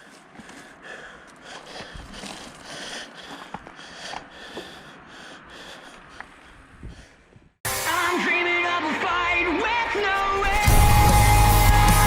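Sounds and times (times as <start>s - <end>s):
person breathing hard: 0.0s - 7.6s.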